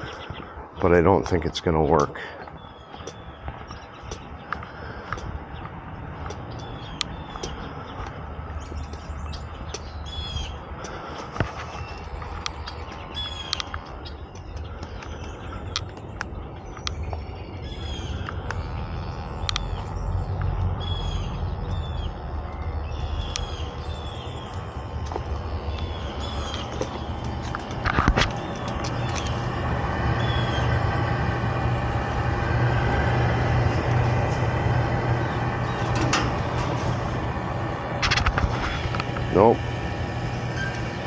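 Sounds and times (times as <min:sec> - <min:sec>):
birds chirping: 0:00.0 - 0:41.0
steady low rumble: 0:00.0 - 0:41.0
sharp clicks: 0:11.9 - 0:17.3, 0:18.2 - 0:21.0.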